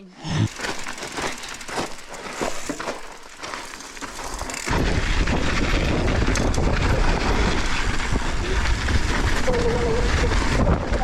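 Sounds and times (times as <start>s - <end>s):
bike tires crunching over gravel: 0.3s - 11.0s
wind rumble on microphone: 4.5s - 11.0s.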